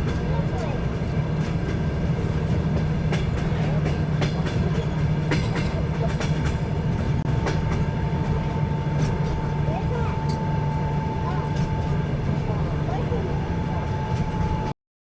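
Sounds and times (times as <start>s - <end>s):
wheels clicking over rail joints: 0.0s - 10.5s
train rumbling: 0.0s - 14.8s.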